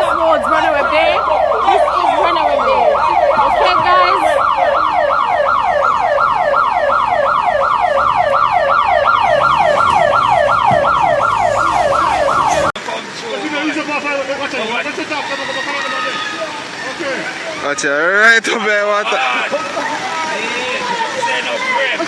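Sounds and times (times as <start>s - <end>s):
siren yelping: 0.0s - 12.8s.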